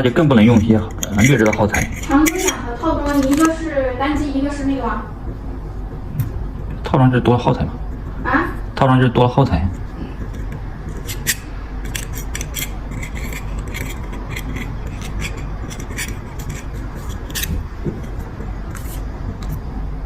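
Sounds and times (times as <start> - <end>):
low steady hum: 0.0 - 20.0
small hand tools clicking and scraping: 0.4 - 3.6, 9.7 - 19.6.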